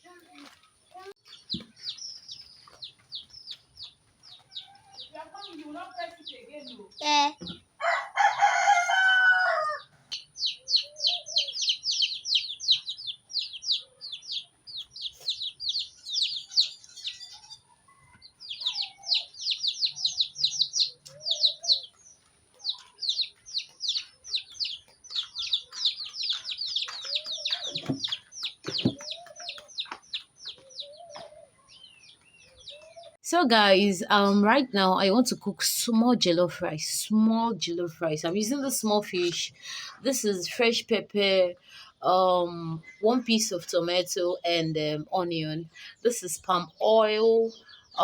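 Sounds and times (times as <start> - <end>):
chicks peeping: 0.1 - 33.2
soft low chicken calls: 7.8 - 33.2.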